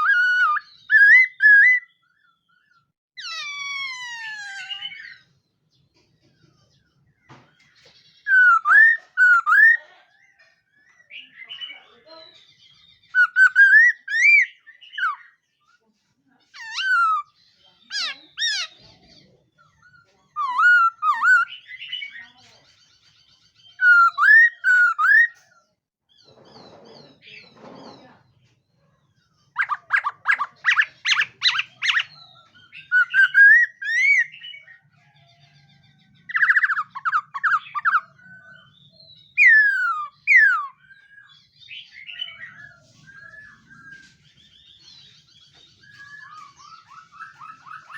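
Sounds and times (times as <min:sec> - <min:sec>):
bird whistling song: 0:00.0 - 0:05.3, 0:07.4 - 0:09.9, 0:11.0 - 0:15.4, 0:16.6 - 0:18.9, 0:20.4 - 0:22.4, 0:23.6 - 0:25.4, 0:29.5 - 0:35.2, 0:35.9 - 0:47.9.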